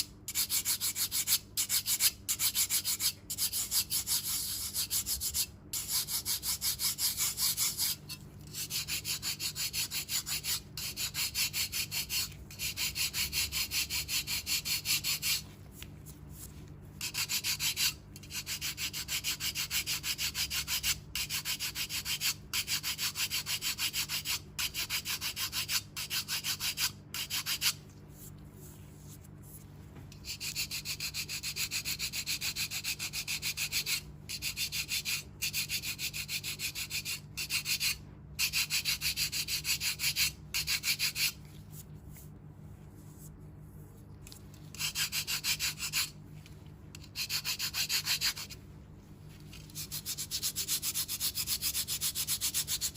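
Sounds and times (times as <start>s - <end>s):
foot file rasping on skin: 0.3s - 15.4s, 17.0s - 27.8s, 30.2s - 41.4s, 44.7s - 46.2s, 47.0s - 48.6s, 49.5s - 52.9s.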